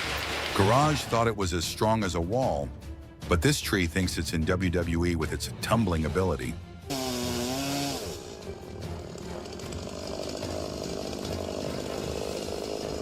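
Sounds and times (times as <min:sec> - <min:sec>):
chainsaw running: 0:06.9 - 0:13.0.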